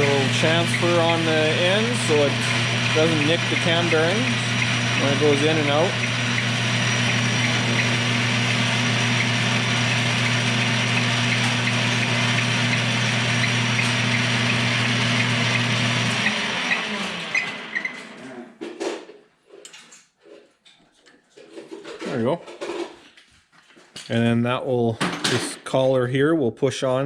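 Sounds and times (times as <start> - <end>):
lathe spinning down: 0.0 - 18.2
metal lathe running: 0.0 - 18.2.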